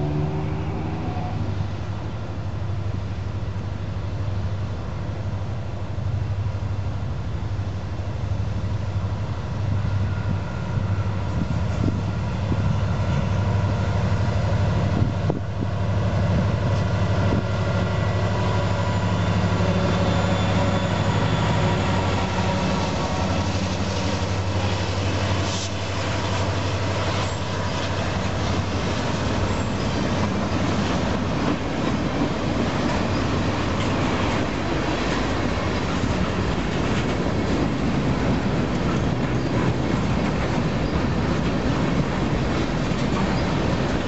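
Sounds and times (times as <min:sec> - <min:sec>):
low locomotive engine drone: 0:00.0 - 0:44.0.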